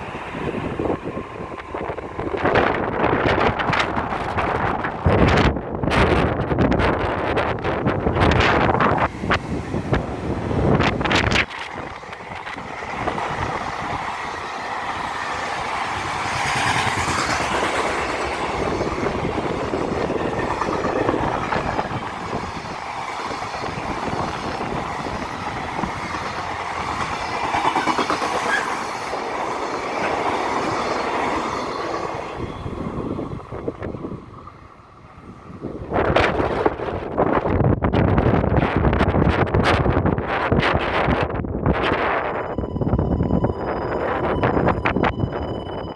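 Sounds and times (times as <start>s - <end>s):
electric train running past: 0.0s - 5.8s, 7.3s - 37.1s
wind buffeting microphone: 0.0s - 45.9s.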